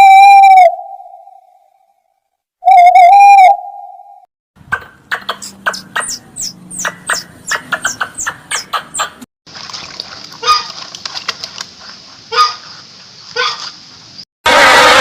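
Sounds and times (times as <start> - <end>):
louder animal calls: 14.5 - 15.0.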